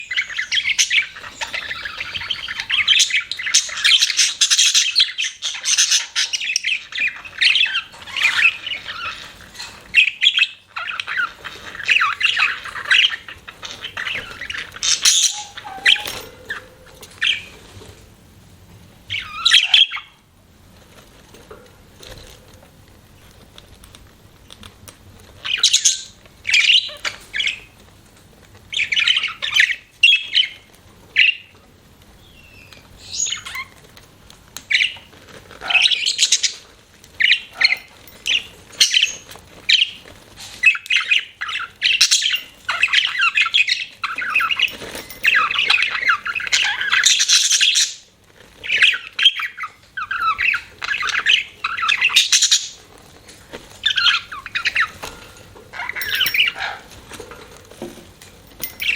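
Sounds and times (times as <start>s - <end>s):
budgerigars chirping: 0.0s - 17.6s, 19.1s - 20.2s, 25.4s - 27.8s, 28.7s - 31.5s, 32.3s - 33.8s, 34.7s - 36.6s, 37.2s - 52.8s, 53.8s - 56.9s.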